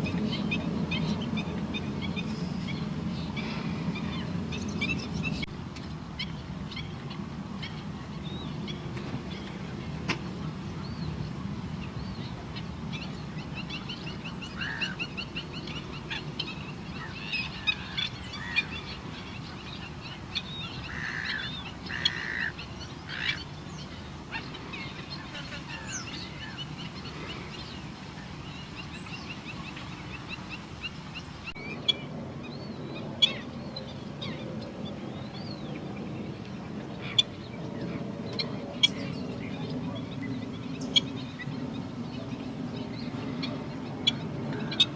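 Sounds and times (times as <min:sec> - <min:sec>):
birds chattering and chirping: 0:00.0 - 0:44.9.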